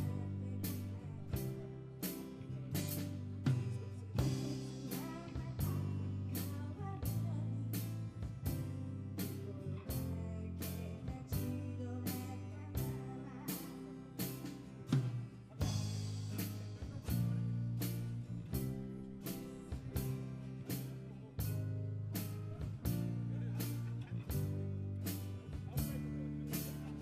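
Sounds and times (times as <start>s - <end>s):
drum kit steady beat: 0.0s - 27.0s
live rock band playing: 0.0s - 27.0s.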